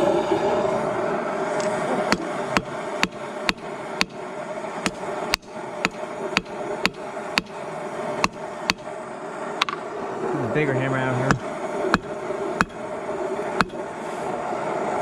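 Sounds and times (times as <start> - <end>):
hammer striking hot metal: 2.1 - 4.2, 4.8 - 7.6, 8.2 - 8.9, 11.3 - 12.8, 13.6 - 13.8.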